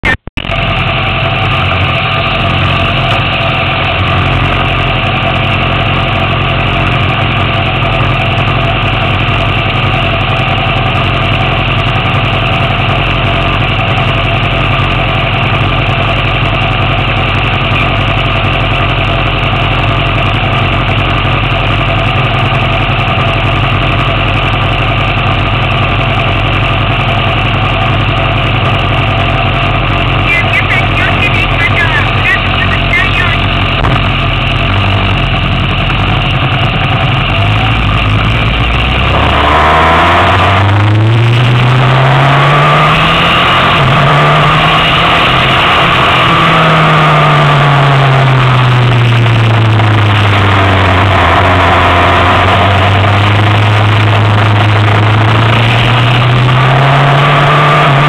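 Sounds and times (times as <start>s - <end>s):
motorcycle engine idling: 0.0s - 38.8s.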